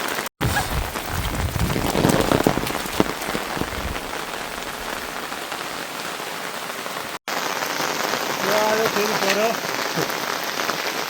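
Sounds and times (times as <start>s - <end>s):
rain falling: 0.0s - 11.0s
low rumble: 0.4s - 5.4s.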